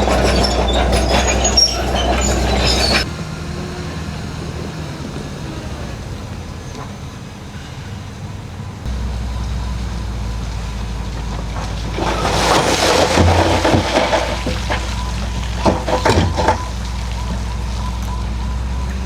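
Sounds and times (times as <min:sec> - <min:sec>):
loud grinding scraping: 0:00.0 - 0:06.4, 0:10.9 - 0:17.7
bulldozer diesel engine running: 0:00.0 - 0:19.0.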